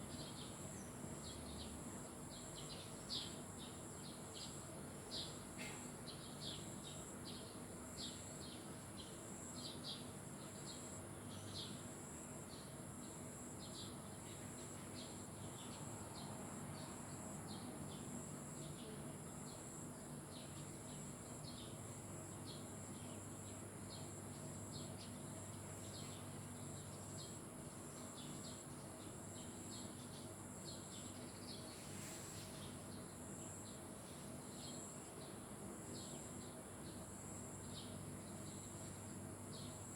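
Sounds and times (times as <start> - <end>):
crickets droning: 0.0 - 39.9
small birds chirping: 12.5 - 39.9.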